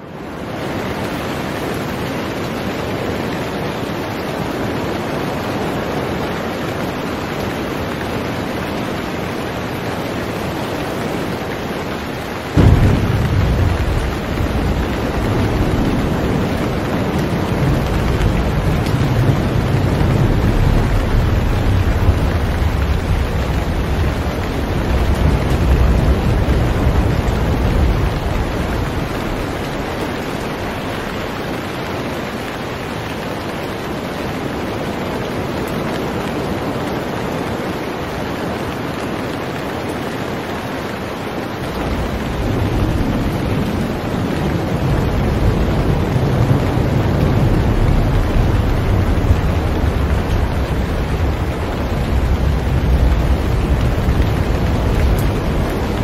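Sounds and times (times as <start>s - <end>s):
heavy rain: 0.0s - 56.0s
wind: 0.0s - 56.0s
low rumble: 12.6s - 30.8s.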